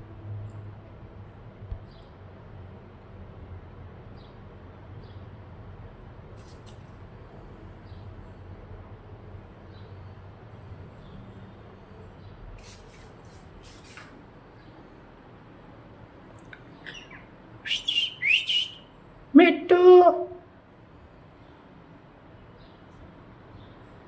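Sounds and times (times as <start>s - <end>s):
parrot squeaking: 16.8s - 18.8s.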